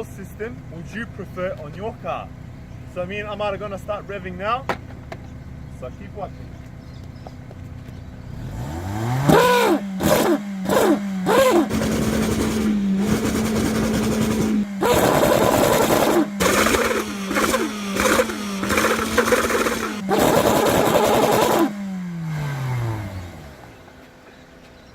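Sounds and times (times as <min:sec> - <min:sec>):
car engine revving: 0:06.6 - 0:23.9.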